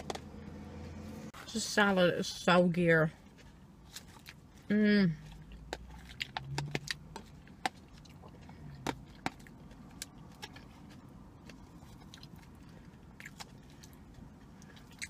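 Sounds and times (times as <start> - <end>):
close-up chewing: 3.2 - 15.0.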